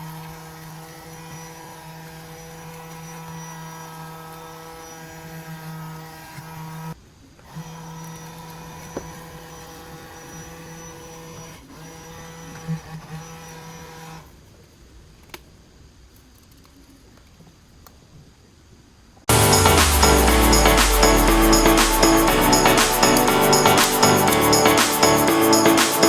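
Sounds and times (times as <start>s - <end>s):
small electric motor humming: 0.0s - 14.3s.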